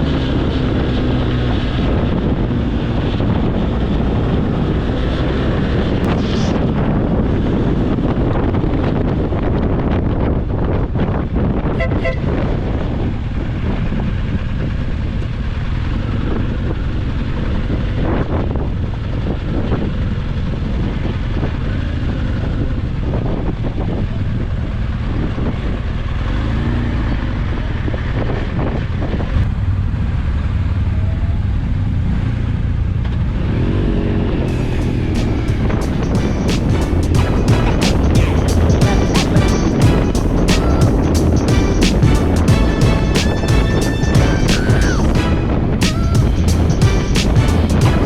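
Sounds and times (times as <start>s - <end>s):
wind buffeting microphone: 0.0s - 26.0s, 27.7s - 48.0s
motorcycle engine running: 12.2s - 48.0s.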